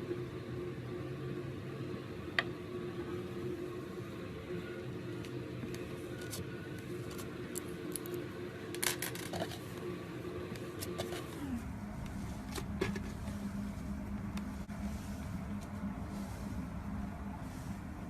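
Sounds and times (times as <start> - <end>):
motor-like hum: 0.0 - 18.0.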